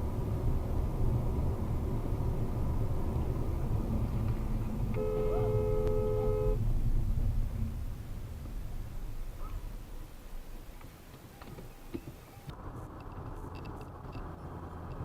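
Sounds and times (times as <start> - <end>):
car road and engine rumble: 0.0 - 15.0
two-note car horn: 4.8 - 6.7.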